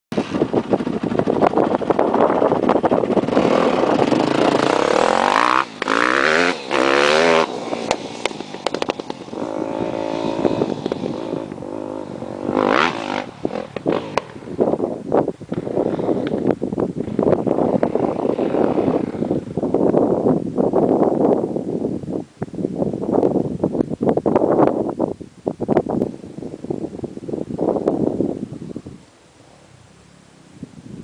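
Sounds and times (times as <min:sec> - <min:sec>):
dirt bike engine revving: 0:00.2 - 0:16.4, 0:17.0 - 0:19.8.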